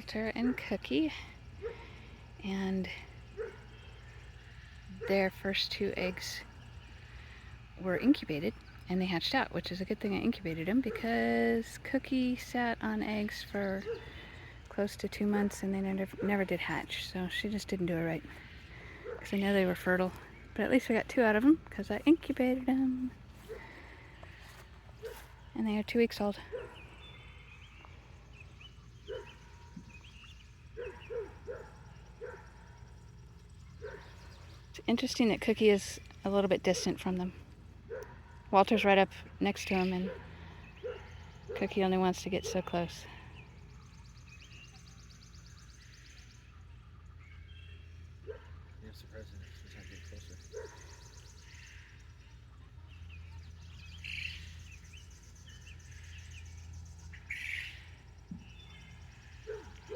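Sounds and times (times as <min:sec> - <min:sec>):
dog barking: 0:30.8 - 0:32.6, 0:40.0 - 0:41.7.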